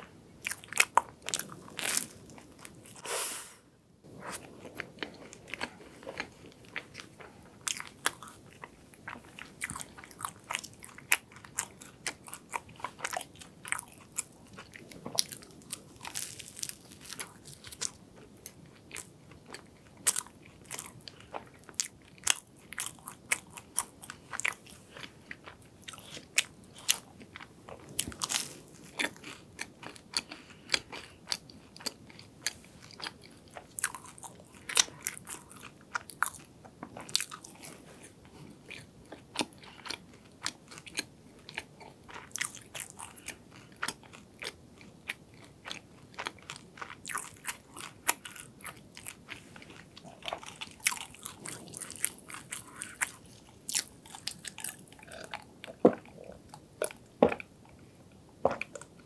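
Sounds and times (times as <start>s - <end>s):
crunchy pastry chewing: 0.4s - 3.0s, 4.2s - 57.8s.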